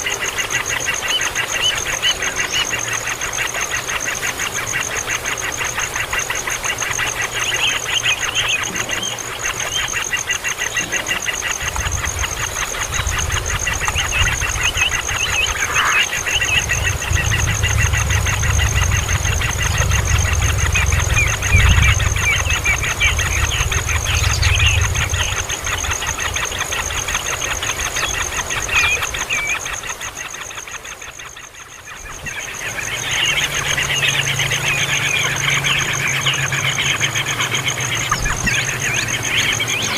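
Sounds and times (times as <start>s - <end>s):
steady high-pitched tone: 5.8s - 39.9s
baby birds chirping: 6.8s - 29.8s, 32.1s - 39.9s
low rumble: 11.7s - 27.8s.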